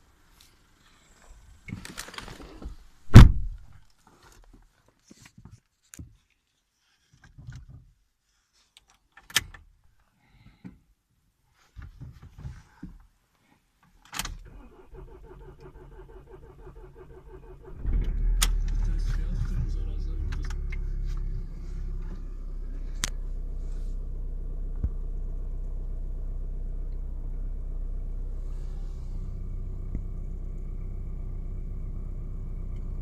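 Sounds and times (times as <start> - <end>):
car door thump: 3.1 - 3.6
rustling: 18.6 - 24.1.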